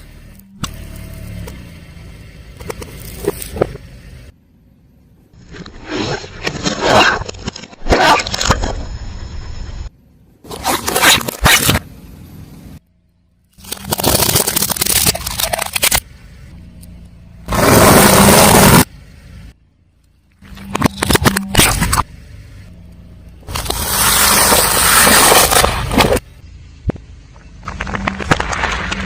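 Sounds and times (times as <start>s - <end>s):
car tyres rolling: 0.0s - 7.1s, 11.6s - 29.0s
tyre crushing crunchy objects: 13.6s - 16.0s, 23.5s - 26.3s.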